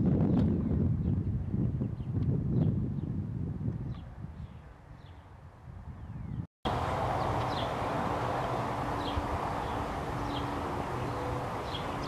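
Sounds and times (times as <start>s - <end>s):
low engine hum: 6.7s - 12.0s
steady rushing noise: 6.7s - 12.0s
bird chirping: 7.1s - 12.0s.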